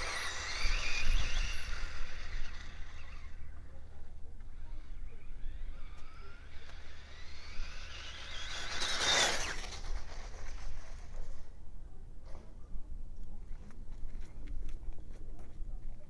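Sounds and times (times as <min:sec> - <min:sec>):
toy car electric motor whining: 0:00.0 - 0:11.5.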